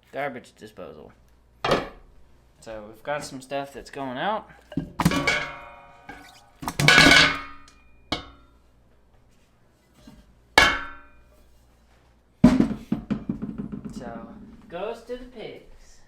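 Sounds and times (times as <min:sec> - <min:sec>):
utensil clanking against pot: 0:04.7 - 0:08.4, 0:10.6 - 0:11.1.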